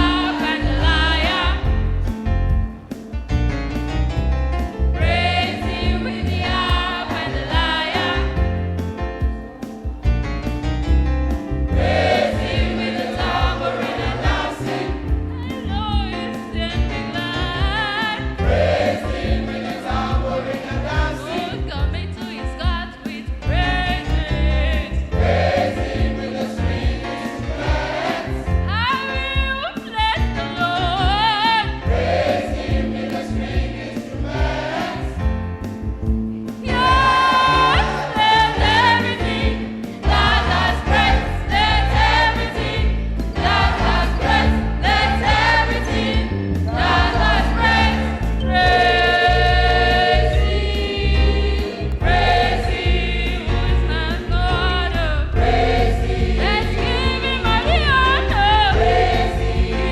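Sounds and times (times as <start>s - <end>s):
choir singing: 0.0s - 1.8s, 4.9s - 8.5s, 11.7s - 15.9s, 17.1s - 21.7s, 23.9s - 28.7s, 31.6s - 35.5s, 36.6s - 59.9s
band with bass and beat: 0.0s - 59.9s.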